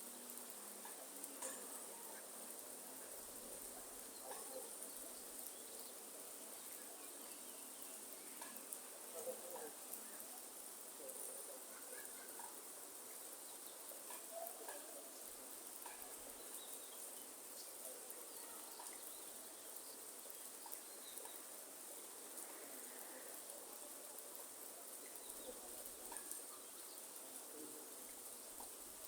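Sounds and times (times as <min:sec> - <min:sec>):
rain falling: 0:00.0 - 0:29.0
faint bird chirps: 0:15.8 - 0:23.5.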